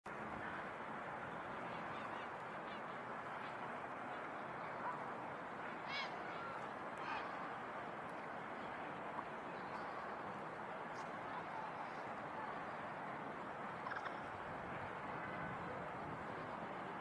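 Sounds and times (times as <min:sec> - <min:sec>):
harsh bird calls: 0:13.8 - 0:14.4.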